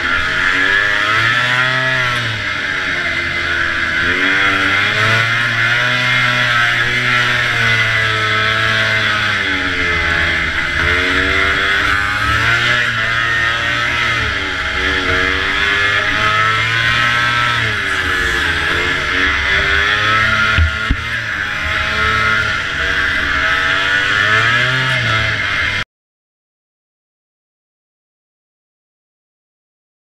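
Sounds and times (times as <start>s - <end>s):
two-stroke snowmobile engine racing: 0.0s - 25.8s.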